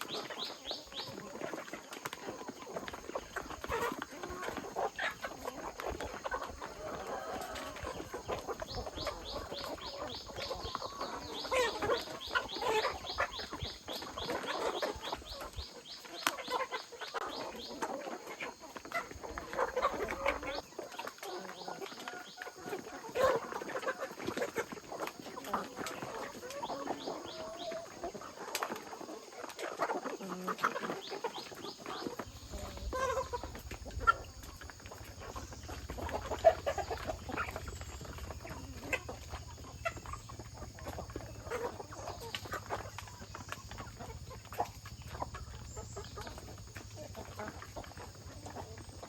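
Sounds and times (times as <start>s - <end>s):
chickens clucking: 0.0s - 49.0s.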